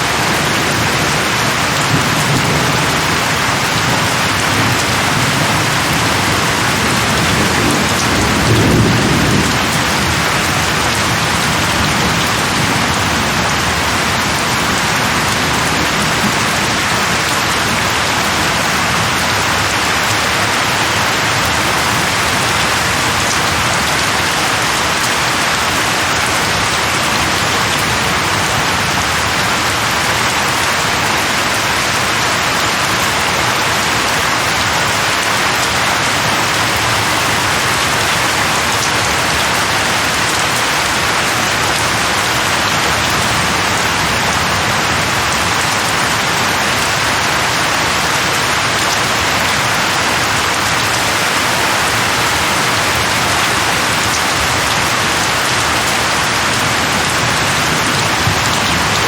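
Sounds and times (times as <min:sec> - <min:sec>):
heavy rain on leaves: 0:00.0 - 0:59.0
low roll of thunder: 0:01.8 - 0:14.3.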